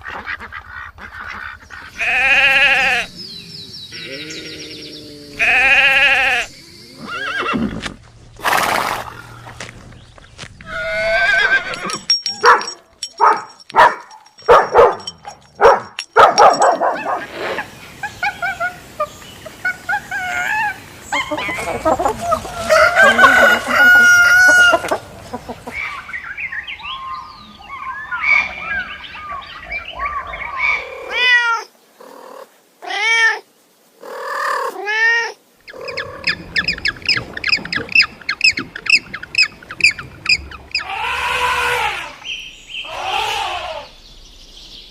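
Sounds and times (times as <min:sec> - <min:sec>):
arching bird calls: 0:00.0 - 0:30.9, 0:35.6 - 0:44.1
pitched animal calls: 0:34.0 - 0:44.0.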